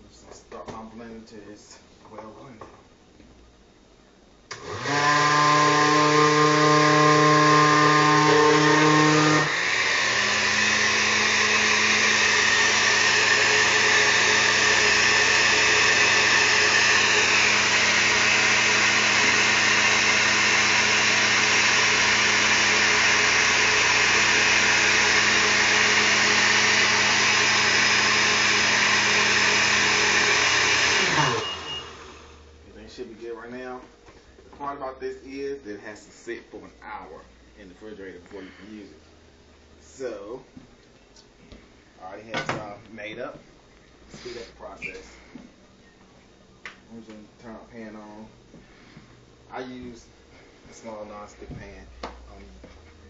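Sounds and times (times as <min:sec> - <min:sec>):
electric blender motor: 0:04.5 - 0:32.5.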